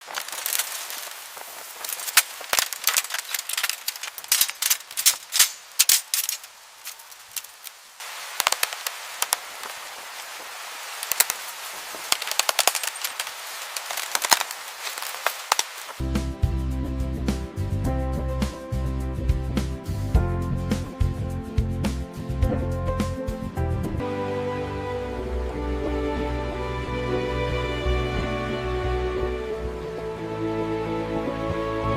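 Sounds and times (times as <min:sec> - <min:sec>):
sharp cracks and snaps: 0:00.0 - 0:16.0
steady hiss: 0:00.0 - 0:16.0
music: 0:16.0 - 0:31.9.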